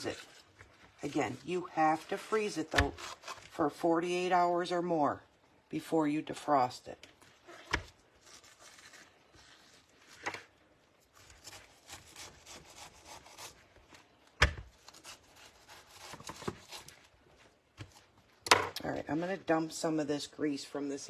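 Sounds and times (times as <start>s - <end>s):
cabbage leaves pulled apart: 0.0s - 3.6s, 7.8s - 10.2s.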